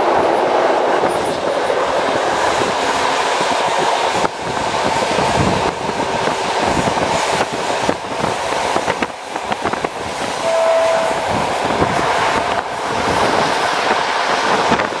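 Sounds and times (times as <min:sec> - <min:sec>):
train rumbling on rails: 0:00.0 - 0:15.0
short steady tone: 0:10.4 - 0:11.3.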